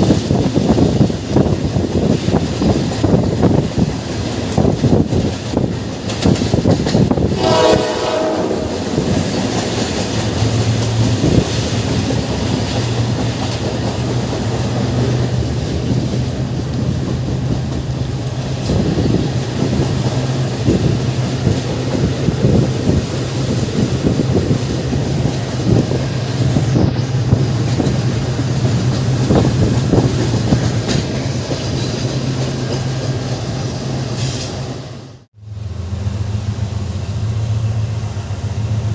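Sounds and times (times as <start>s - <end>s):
train running on rails: 0.0s - 38.9s
train horn: 7.2s - 9.4s.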